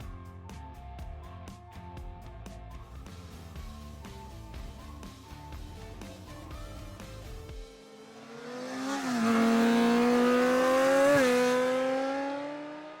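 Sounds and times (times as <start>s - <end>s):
vehicle engine accelerating past: 7.8s - 13.0s.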